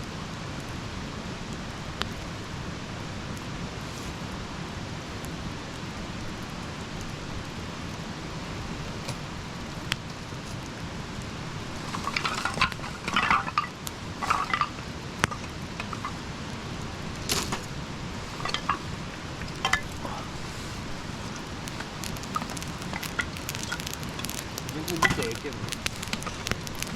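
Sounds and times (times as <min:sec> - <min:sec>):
campfire hissing and popping: 0:00.0 - 0:26.9
light clinking and rattling: 0:11.8 - 0:16.2, 0:18.3 - 0:20.3.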